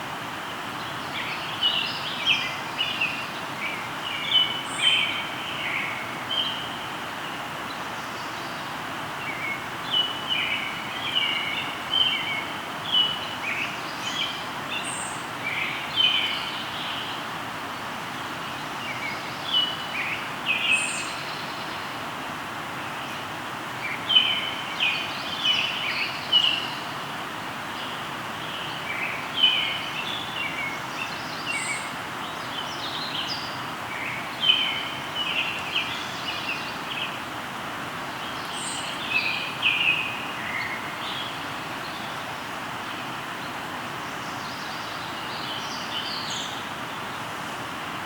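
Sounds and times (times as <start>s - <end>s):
river flowing: 0.0s - 48.0s.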